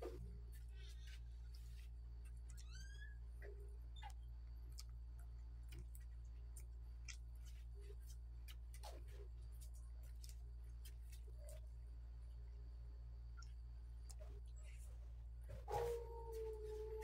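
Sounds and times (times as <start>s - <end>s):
steady low hum: 0.0s - 17.0s
wet chewing clicks and lip smacks: 4.0s - 11.7s.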